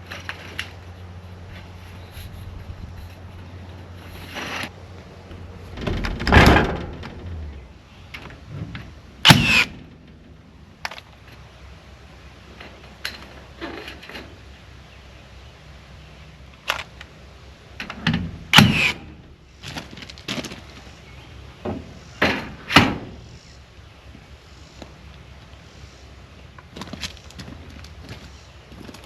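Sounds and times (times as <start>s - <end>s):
knocks and thuds: 5.7s - 7.7s.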